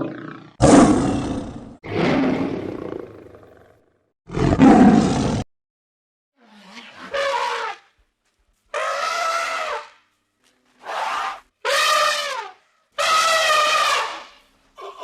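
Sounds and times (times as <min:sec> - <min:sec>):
animal calling: 0:08.7 - 0:10.0, 0:10.8 - 0:15.0.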